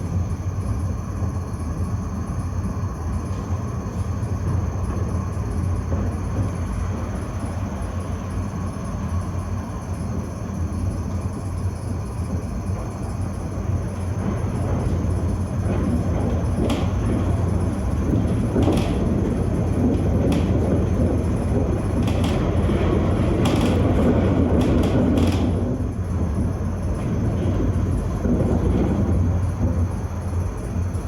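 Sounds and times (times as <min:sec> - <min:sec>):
tram rumble: 0:00.0 - 0:31.0
wheel clicks and knocks: 0:14.7 - 0:29.0.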